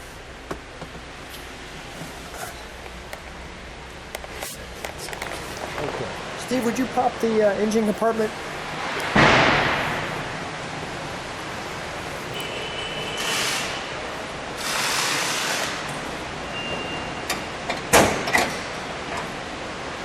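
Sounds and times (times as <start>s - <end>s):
rustling scraping sounds: 1.2s - 3.3s, 4.2s - 6.8s
car hood metal clunk: 9.0s - 10.3s.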